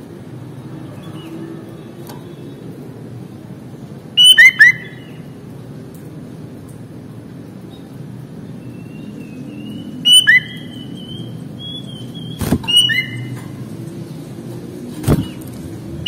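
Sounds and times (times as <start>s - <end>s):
thin wavering whistle: 4.2s - 5.0s, 9.7s - 13.2s
bird whistled calls: 4.2s - 5.2s, 8.8s - 13.3s.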